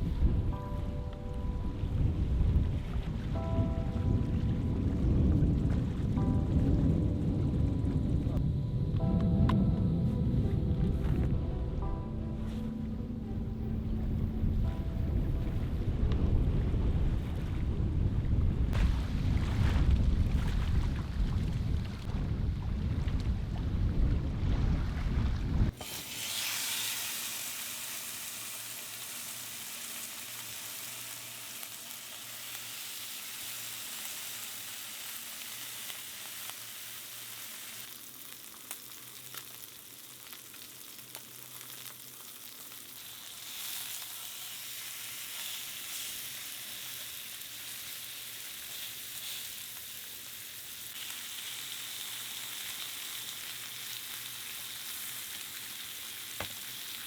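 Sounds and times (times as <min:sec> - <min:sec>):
steak sizzling in a frying pan: 0:25.8 - 0:57.0.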